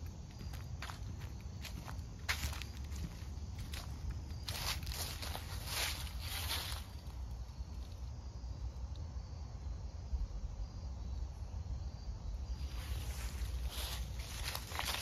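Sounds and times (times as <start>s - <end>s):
footsteps on a trail: 0.0s - 7.2s, 12.6s - 15.0s
insects chirping: 0.0s - 15.0s.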